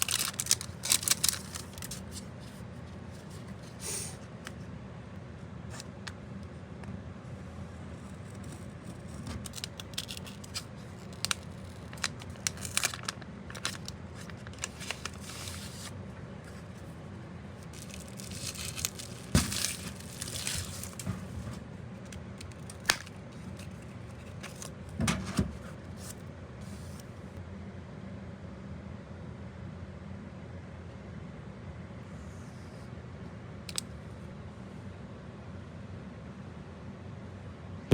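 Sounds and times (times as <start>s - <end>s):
packaging crinkling and tearing: 0.0s - 2.6s, 8.2s - 16.6s, 17.6s - 25.0s
steady low hum: 0.0s - 37.9s.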